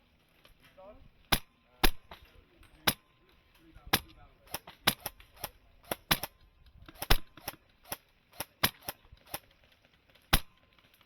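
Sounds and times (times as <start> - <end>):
airsoft rifle shots: 1.2 - 3.1, 3.8 - 10.8.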